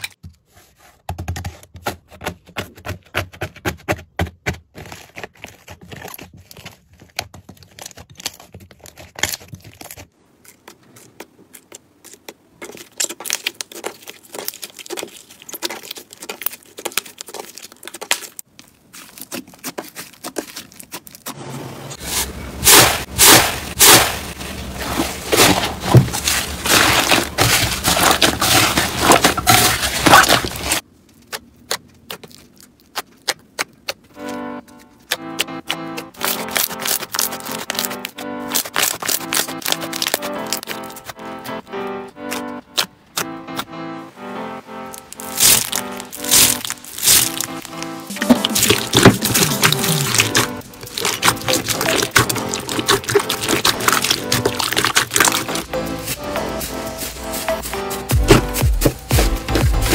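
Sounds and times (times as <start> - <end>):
slime crackling and popping: 11.5 - 21.3, 22.6 - 41.6, 44.9 - 55.6.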